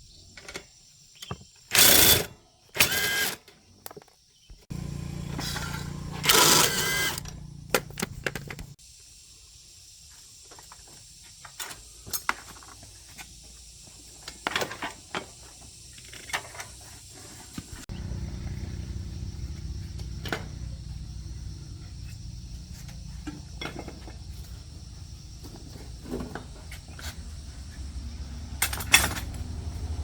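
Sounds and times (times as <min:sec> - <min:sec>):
small machine humming: 0:02.8 - 0:03.4, 0:04.7 - 0:08.7.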